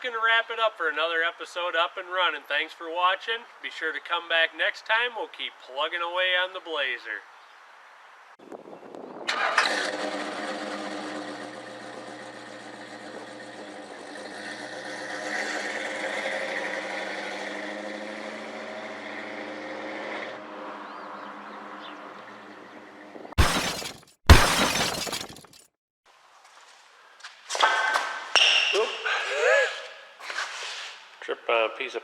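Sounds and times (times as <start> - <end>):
vehicle engine running: 9.7 - 19.5.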